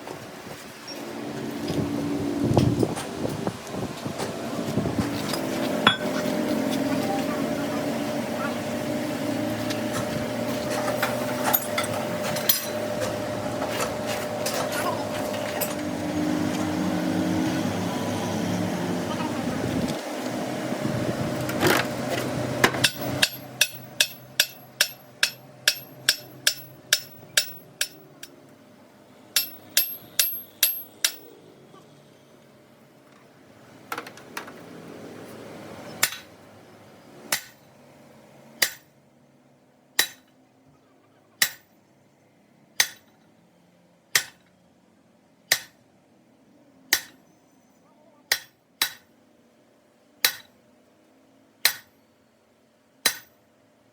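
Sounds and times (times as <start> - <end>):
hammer striking metal: 5.8 - 6.2, 22.8 - 28.4, 29.4 - 31.4, 36.0 - 36.3, 38.6 - 38.9, 40.0 - 40.3, 41.4 - 41.7, 42.8 - 43.2, 44.2 - 44.4, 45.5 - 45.8, 46.9 - 47.2, 48.3 - 49.1, 50.2 - 50.5, 51.6 - 51.9, 53.0 - 53.3.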